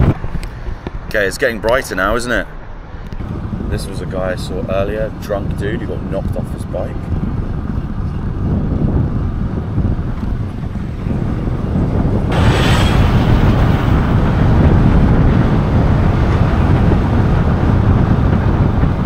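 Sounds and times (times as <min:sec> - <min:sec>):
wind buffeting microphone: 0:00.0 - 0:19.0
motorcycle engine rumbling: 0:03.2 - 0:19.0.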